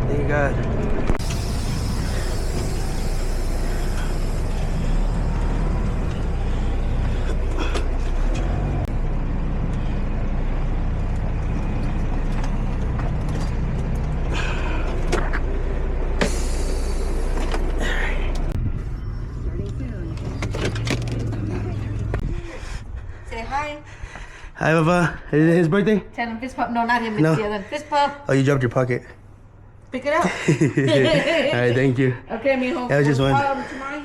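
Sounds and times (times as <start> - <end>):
diesel engine running: 0.0 - 23.7
short air hisses: 1.2 - 5.6, 16.2 - 18.3.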